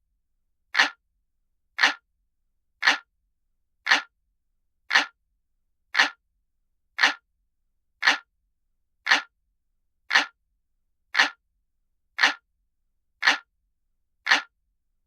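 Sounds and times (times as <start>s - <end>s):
clock ticking: 0.8s - 1.0s, 1.8s - 2.0s, 2.8s - 3.1s, 3.9s - 4.1s, 4.9s - 5.2s, 6.0s - 6.2s, 7.0s - 7.2s, 8.0s - 8.3s, 9.1s - 9.3s, 10.1s - 10.4s, 11.2s - 11.4s, 12.2s - 12.4s, 13.2s - 13.5s, 14.3s - 14.5s.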